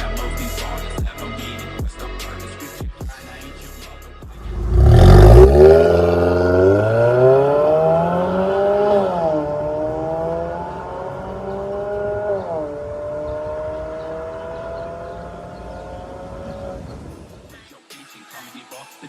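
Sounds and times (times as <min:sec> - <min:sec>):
car exhaust accelerating hard: 0:04.4 - 0:17.4.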